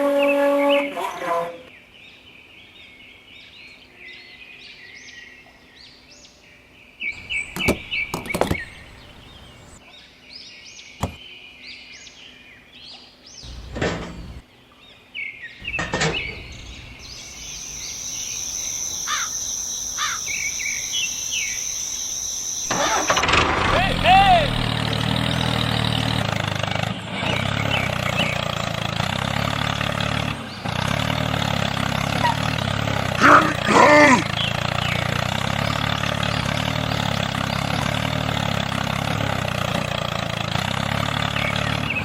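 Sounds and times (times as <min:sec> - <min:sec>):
small birds chirping: 0:02.7 - 0:25.0, 0:26.0 - 0:28.9, 0:29.8 - 0:38.2, 0:41.0 - 0:42.0
sharp knocks: 0:07.2 - 0:09.0, 0:11.0 - 0:11.2, 0:13.5 - 0:14.4, 0:15.6 - 0:17.4
steady high-pitched whine: 0:15.8 - 0:23.4.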